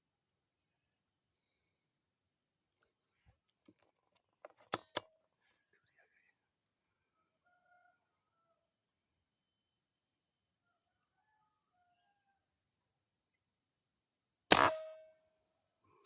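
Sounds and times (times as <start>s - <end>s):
crickets and insects chirring: 0.0s - 16.0s
gunshots: 14.5s - 15.1s.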